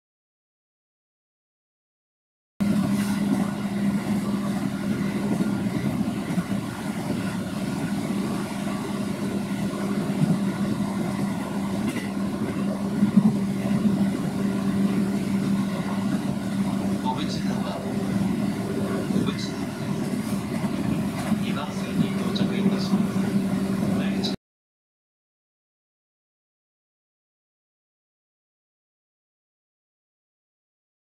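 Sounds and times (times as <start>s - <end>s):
low hum: 2.6s - 24.4s
wheels rumbling on rail: 2.6s - 24.4s.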